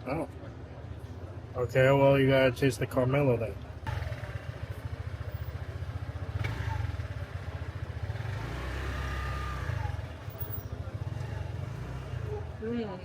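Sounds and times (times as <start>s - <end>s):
motorbike engine rumbling: 3.8s - 13.0s.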